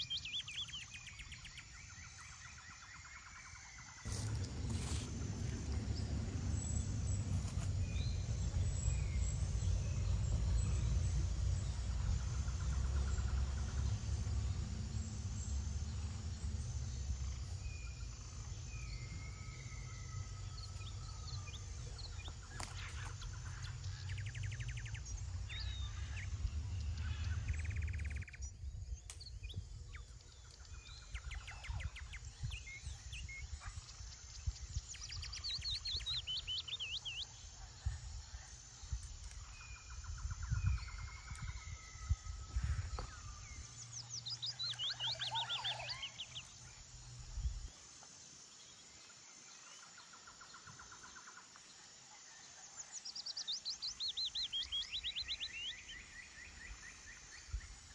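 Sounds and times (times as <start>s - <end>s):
birds chirping and trilling: 0.0s - 37.9s, 38.9s - 47.2s, 52.8s - 57.9s
low rumble: 4.0s - 29.9s.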